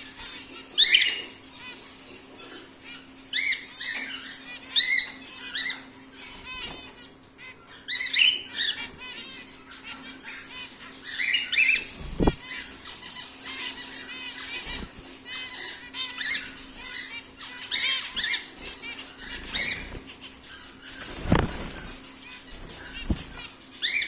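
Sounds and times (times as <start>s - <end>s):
birds chirping and calling: 0.0s - 24.0s
wings fluttering: 10.4s - 15.4s, 16.2s - 23.6s.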